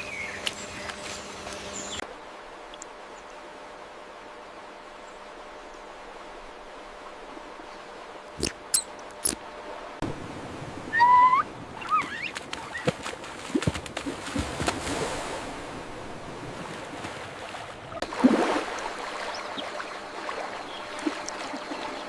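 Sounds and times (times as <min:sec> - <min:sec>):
bird calling: 0:10.9 - 0:13.0.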